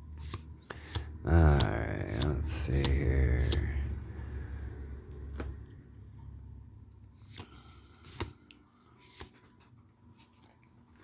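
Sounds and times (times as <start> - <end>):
trading cards being flipped: 0.1 - 3.7, 7.2 - 11.0.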